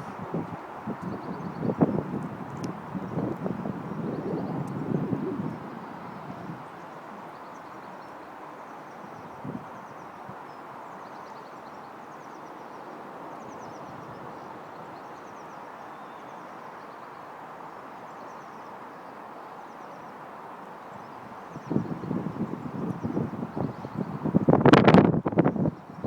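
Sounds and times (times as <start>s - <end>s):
wind buffeting microphone: 0.0s - 7.2s, 21.5s - 26.0s
small birds singing: 0.0s - 17.2s
outdoor background noise: 0.0s - 26.0s.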